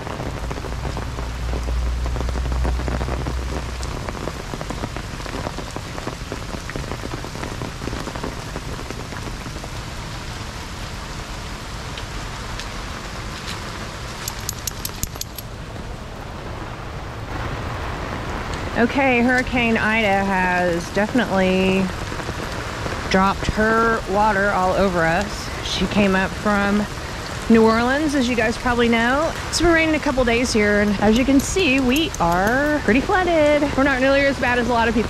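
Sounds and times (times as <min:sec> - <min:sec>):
heavy rain pattering: 0:00.0 - 0:35.0
sharp ticks: 0:14.2 - 0:15.4.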